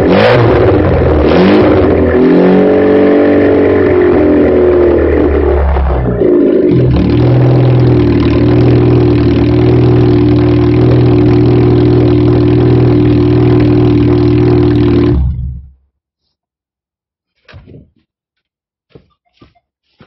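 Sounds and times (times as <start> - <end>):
loud car engine idling: 0.0 - 15.8.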